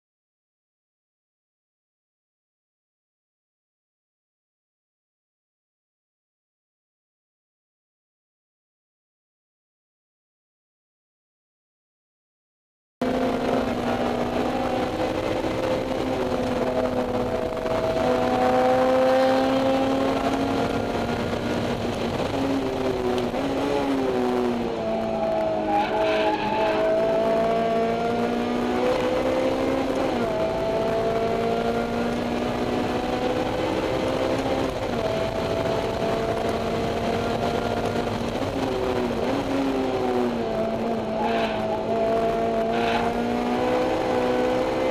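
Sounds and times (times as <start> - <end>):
car engine revving through gears: 13.0 - 44.9.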